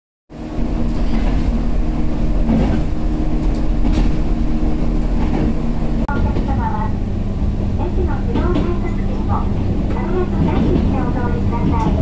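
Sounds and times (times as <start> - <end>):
train wheels rumbling on rail: 0.3 - 12.0
motor hum: 0.4 - 6.1.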